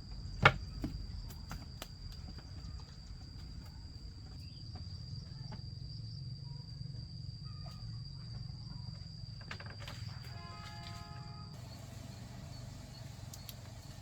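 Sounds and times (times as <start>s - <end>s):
cricket trilling: 0.0s - 14.0s
faint clicks: 13.2s - 13.7s.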